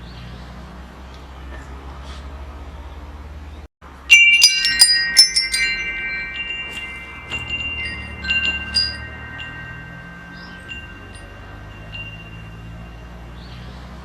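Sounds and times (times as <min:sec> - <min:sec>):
metal wind chimes ringing: 0:03.9 - 0:14.0.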